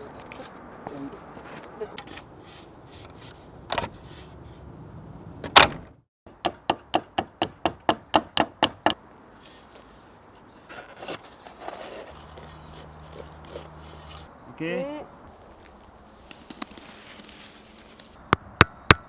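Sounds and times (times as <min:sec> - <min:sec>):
sharp knocks: 0:18.3 - 0:19.0.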